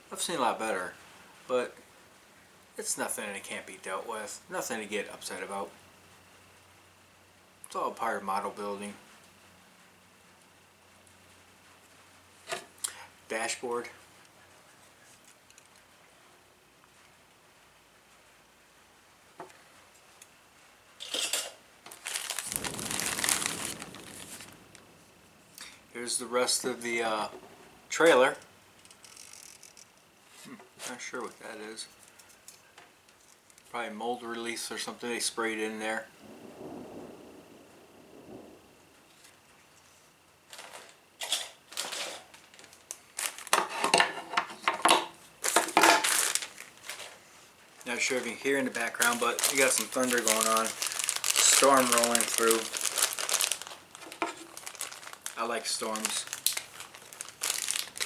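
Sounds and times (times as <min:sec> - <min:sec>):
plastic parts clattering: 0:21.0 - 0:24.8, 0:40.5 - 0:47.2, 0:47.9 - 0:58.0
plastic bag crinkling: 0:21.9 - 0:25.1, 0:41.7 - 0:43.8, 0:45.4 - 0:58.0.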